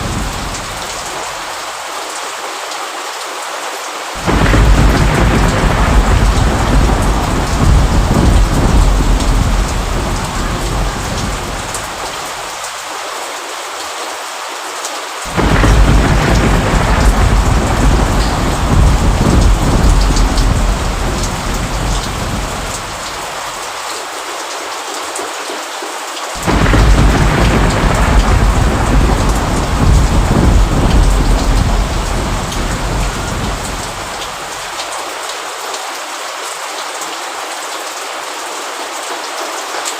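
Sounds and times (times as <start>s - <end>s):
thunder rolling: 0.0s - 1.2s, 4.2s - 12.5s, 15.3s - 23.5s, 26.4s - 34.7s
steady rain: 0.0s - 39.9s.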